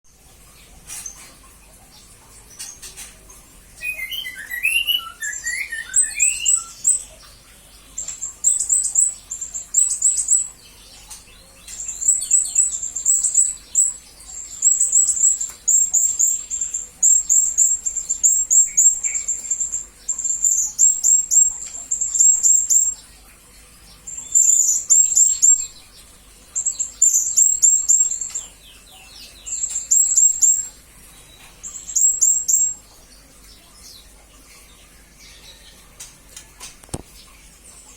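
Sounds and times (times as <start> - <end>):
parrot chirping trills: 3.8 - 7.2, 8.0 - 10.7, 11.4 - 23.0, 24.1 - 25.8, 26.6 - 32.8.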